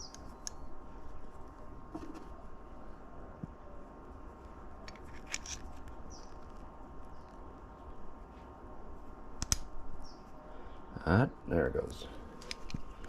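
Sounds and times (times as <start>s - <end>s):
small clicks and taps of parts: 9.4s - 9.7s, 12.4s - 13.0s.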